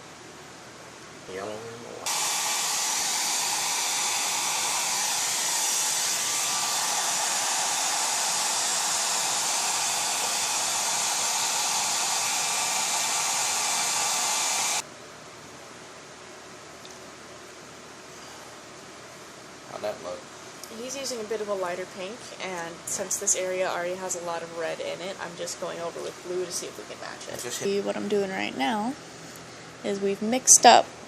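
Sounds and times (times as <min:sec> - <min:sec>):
hair dryer blowing: 0:02.0 - 0:14.8.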